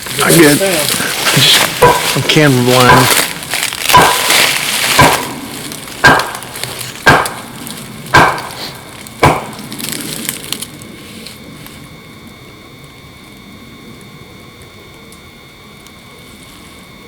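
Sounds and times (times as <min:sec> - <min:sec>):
wood knocking on tree trunk: 0:03.9 - 0:05.3.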